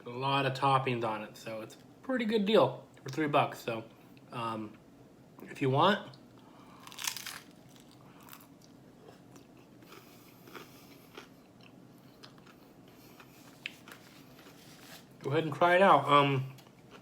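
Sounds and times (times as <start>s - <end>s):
crunching bite into tostada: 6.8s - 12.6s
chewing crunches: 6.8s - 14.6s.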